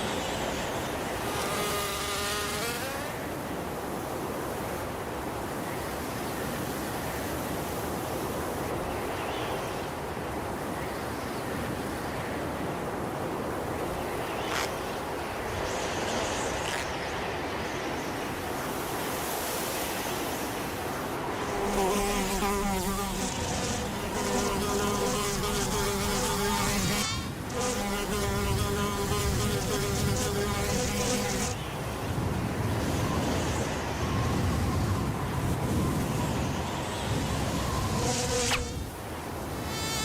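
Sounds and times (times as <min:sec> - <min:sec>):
insect wings buzzing: 0:00.0 - 0:03.3, 0:14.4 - 0:14.9, 0:15.5 - 0:17.3, 0:20.2 - 0:31.8, 0:36.1 - 0:38.9, 0:39.5 - 0:40.0
wind blowing: 0:12.9 - 0:39.7.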